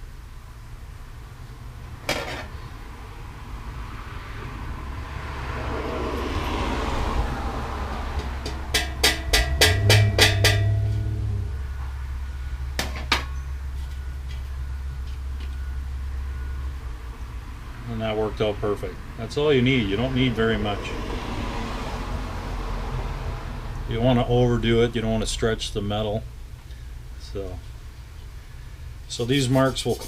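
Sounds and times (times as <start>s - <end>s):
hammer tapping on metal drum shell: 8.2s - 11.5s.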